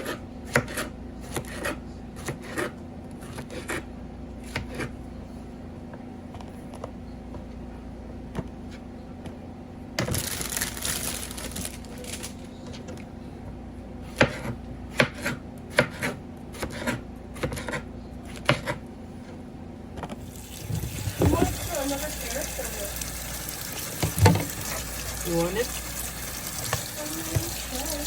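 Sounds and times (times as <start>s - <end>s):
knife chopping on cutting board: 0.0s - 4.9s, 14.0s - 18.8s.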